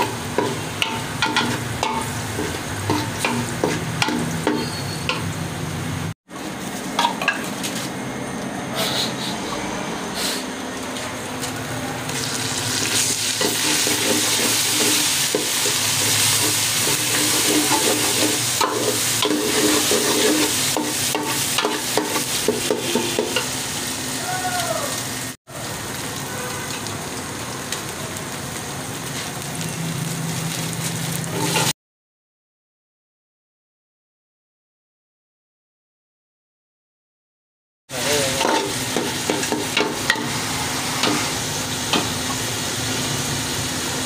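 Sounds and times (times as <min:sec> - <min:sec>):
food sizzling in hot oil: 0:00.0 - 0:07.7, 0:11.4 - 0:31.8, 0:37.9 - 0:44.0
spoon scraping a pot: 0:13.4 - 0:21.8.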